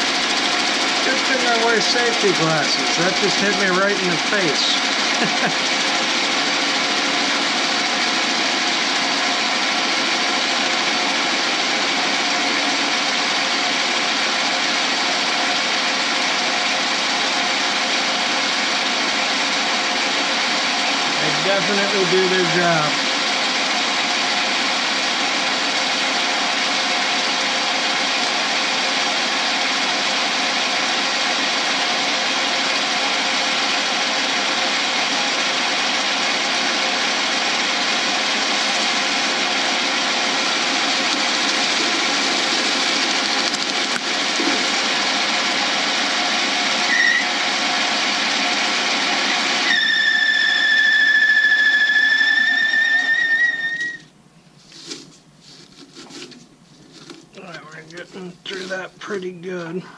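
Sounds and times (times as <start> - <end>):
lathe tool scraping plastic: 40.3 - 45.1
high-pitched tool squeal: 46.8 - 47.4, 49.6 - 54.1.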